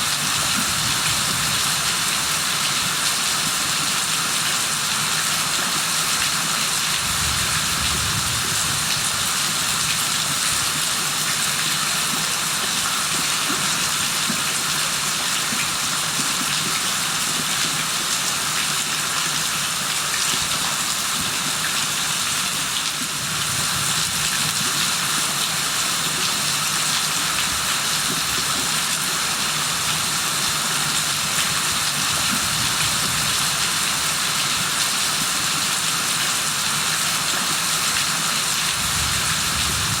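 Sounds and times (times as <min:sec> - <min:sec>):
heavy rain: 0:05.8 - 0:11.2, 0:29.0 - 0:40.0.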